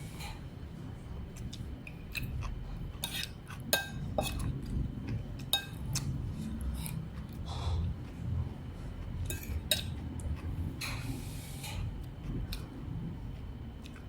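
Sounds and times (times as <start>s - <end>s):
low background rumble: 0.0s - 14.0s
cutlery clinking on dishes: 5.5s - 5.8s, 9.3s - 10.0s.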